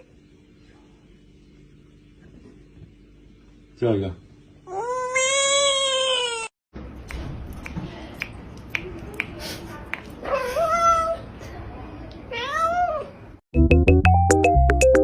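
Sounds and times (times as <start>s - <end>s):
cat meowing: 12.3s - 13.1s.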